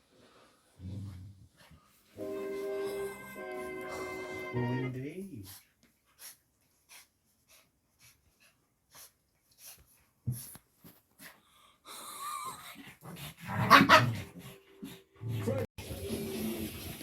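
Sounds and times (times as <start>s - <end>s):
dog breathing hard: 5.4s - 12.0s.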